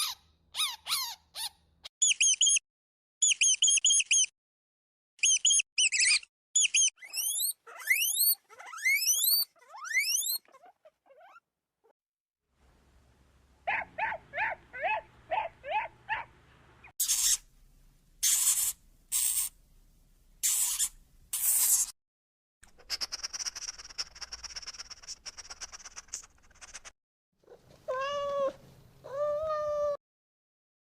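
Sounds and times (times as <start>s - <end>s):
high squeaky animal chirps: 0.0s - 2.6s, 3.2s - 4.3s, 5.2s - 11.4s, 16.9s - 17.5s, 18.2s - 19.6s, 20.4s - 22.0s
cat meowing: 27.5s - 30.0s.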